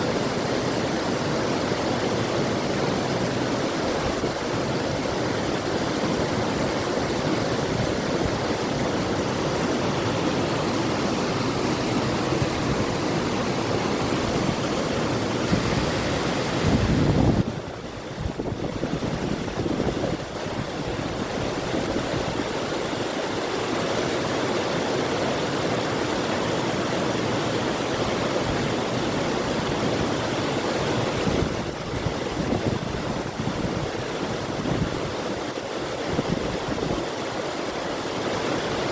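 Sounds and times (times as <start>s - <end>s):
river water rushing: 0.0s - 38.9s
wind: 0.0s - 38.9s.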